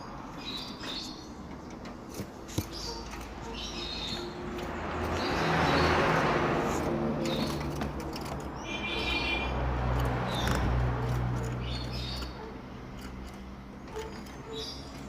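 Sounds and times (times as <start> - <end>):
bullfinch chirping calls: 13.9 - 15.0.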